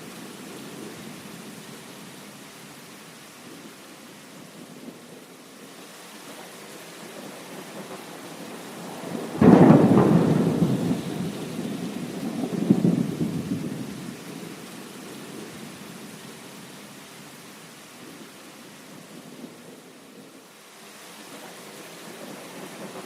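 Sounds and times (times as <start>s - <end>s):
heavy rain: 0.0s - 23.0s
thunderclap rumbling: 7.1s - 14.5s.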